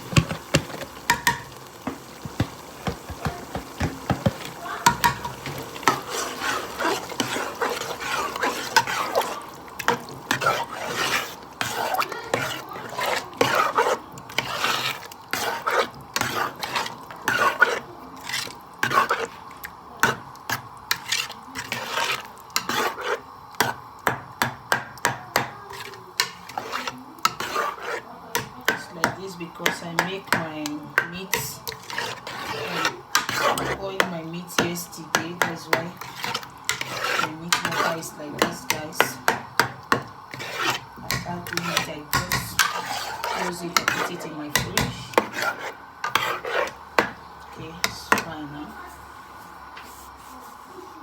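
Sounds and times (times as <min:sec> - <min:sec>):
spoon stirring and scraping in pot: 0:00.0 - 0:51.0
spoon knocking against pot: 0:00.1 - 0:06.0, 0:38.4 - 0:40.1, 0:41.0 - 0:42.8.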